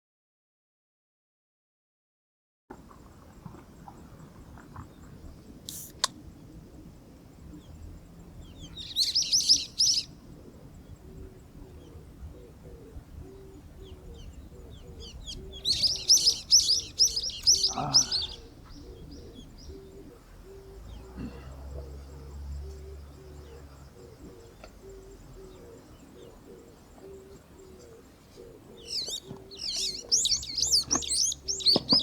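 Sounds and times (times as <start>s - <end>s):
small bird twittering: 7.4s - 32.0s.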